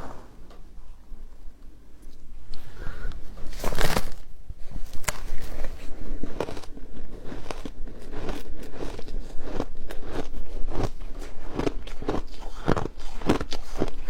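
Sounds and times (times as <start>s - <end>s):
ice being chewed: 5.0s - 14.0s.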